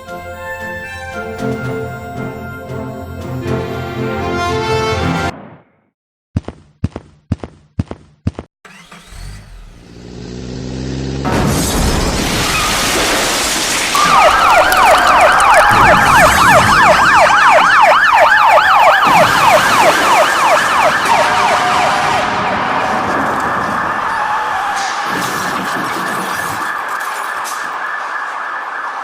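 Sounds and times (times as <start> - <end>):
vehicle engine revving: 8.7 - 11.6
loud rushing noise: 13.2 - 17.6
emergency siren yelping: 13.9 - 29.0.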